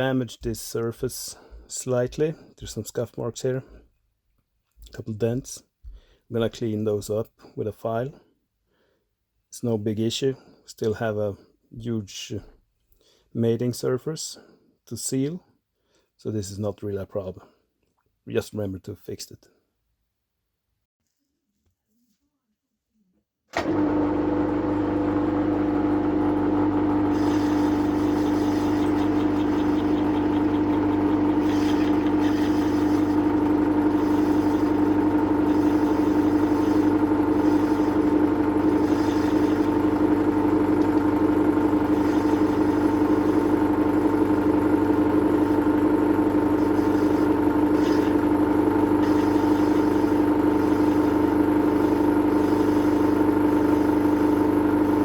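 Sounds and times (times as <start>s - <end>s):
lathe cutting metal: 23.6s - 55.0s
metal lathe motor running: 23.6s - 55.0s.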